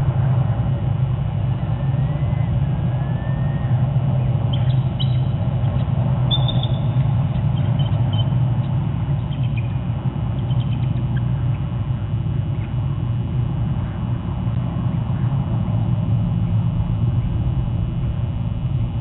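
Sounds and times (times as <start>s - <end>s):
low rumble: 0.0s - 19.0s
small bird chirps: 4.5s - 9.8s, 10.4s - 11.6s.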